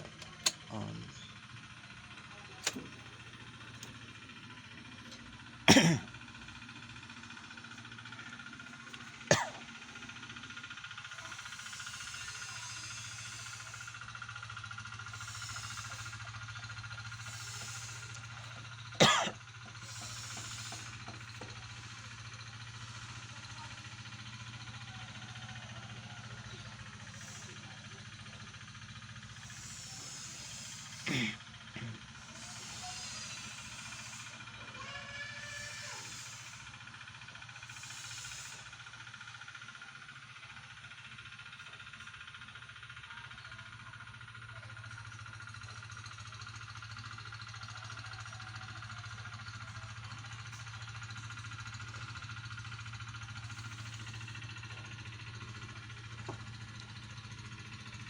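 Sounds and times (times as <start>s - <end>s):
car engine idling: 0.0s - 58.0s
pulsing mechanical hum: 0.0s - 58.0s
person coughing: 5.7s - 6.1s, 9.3s - 9.6s, 19.0s - 19.4s, 31.1s - 31.4s
brief hissing: 15.1s - 16.2s, 17.2s - 18.3s, 19.8s - 21.0s, 35.5s - 36.6s, 37.7s - 38.7s.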